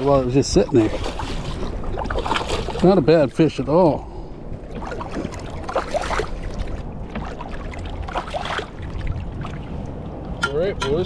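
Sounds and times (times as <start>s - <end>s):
kayak handling sounds: 0.0s - 3.0s
water sounds: 0.0s - 11.0s.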